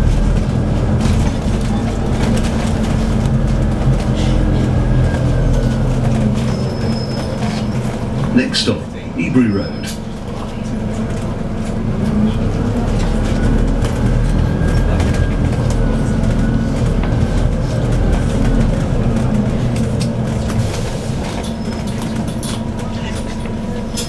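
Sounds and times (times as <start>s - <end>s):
bus engine rumbling: 0.0s - 24.0s.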